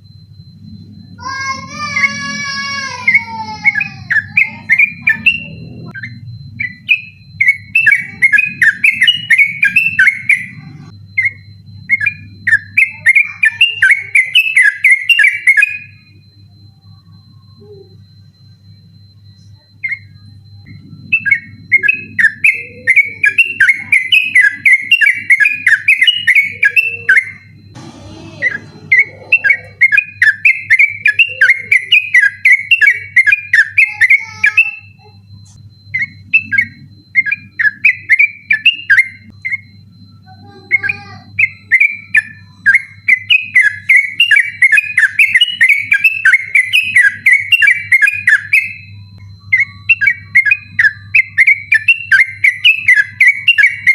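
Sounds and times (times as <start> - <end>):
low hum: 0.0 - 9.3, 27.4 - 30.0
faint high tone: 0.4 - 5.9, 16.2 - 20.8, 26.7 - 29.9, 40.2 - 41.4
bulbul singing chattering notes: 0.6 - 16.2, 19.8 - 53.9.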